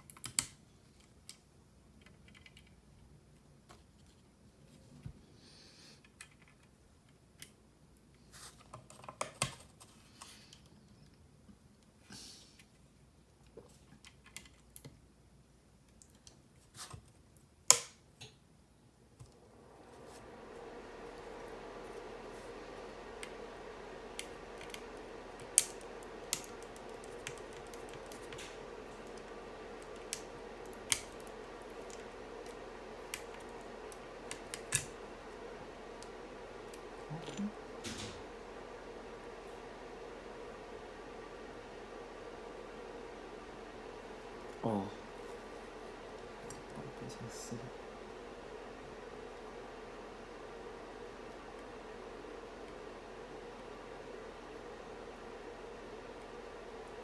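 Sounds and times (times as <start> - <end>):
keyboard parts clicking and snapping: 0.0 - 1.4, 25.4 - 33.6.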